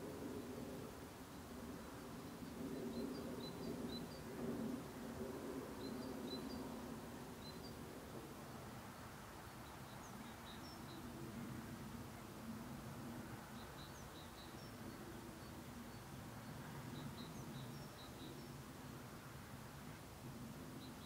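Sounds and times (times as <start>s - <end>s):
small birds chirping: 13.4s - 19.0s.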